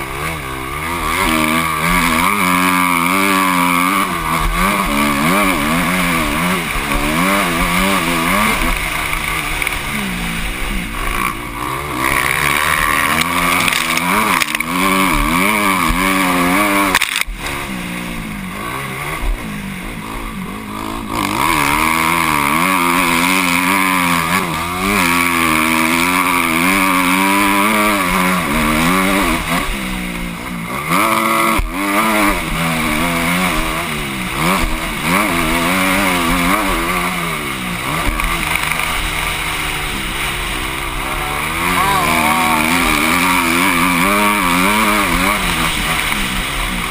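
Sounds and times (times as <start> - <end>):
motocross engine revving: 0.0 - 46.9.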